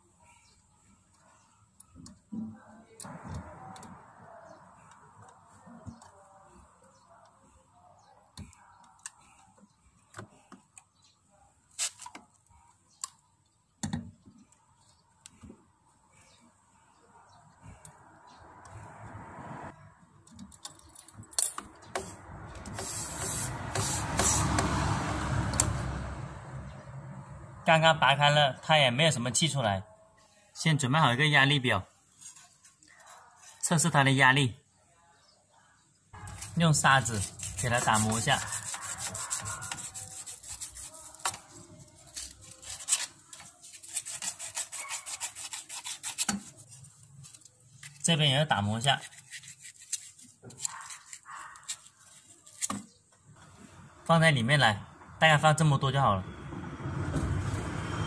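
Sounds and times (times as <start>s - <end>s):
hand tools clicking and scraping on pipe: 36.2s - 48.0s, 48.9s - 52.8s.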